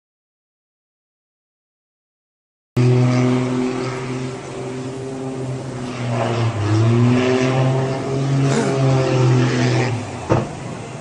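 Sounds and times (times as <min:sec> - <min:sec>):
engine running with low hum: 0:02.8 - 0:11.0.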